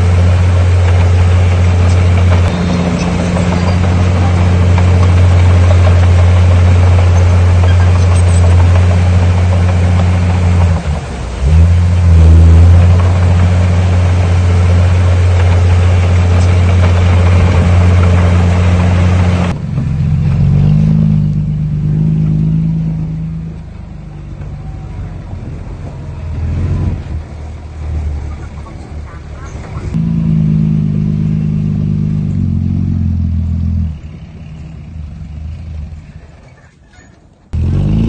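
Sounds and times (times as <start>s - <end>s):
quieter dull engine note: 0.0s - 36.2s
heavy diesel engine running hard: 0.0s - 36.4s.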